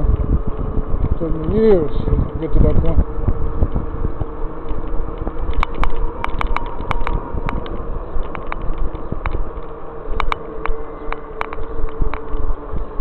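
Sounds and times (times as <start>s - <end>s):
electric bike motor whine: 0.0s - 13.0s
low wind: 0.0s - 13.0s
road rumble: 0.0s - 13.0s
sharp clicks and rattles: 3.6s - 12.6s.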